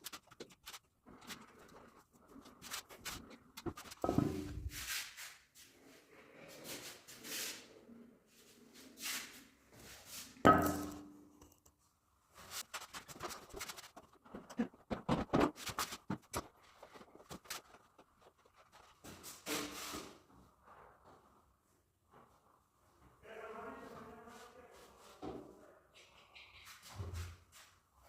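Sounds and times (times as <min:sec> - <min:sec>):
loud knock with ring: 0:10.5 - 0:11.1.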